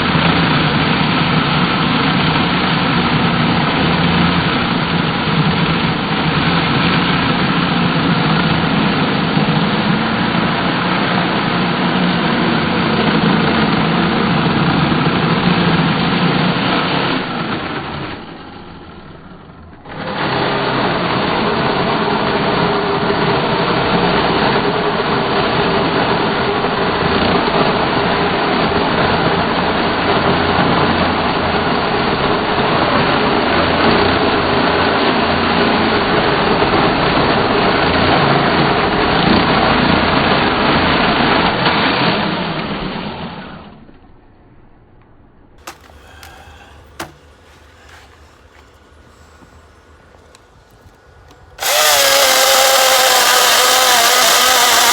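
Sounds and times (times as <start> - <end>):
chainsaw cutting wood: 0.0 - 18.8, 19.8 - 26.5, 45.6 - 54.9.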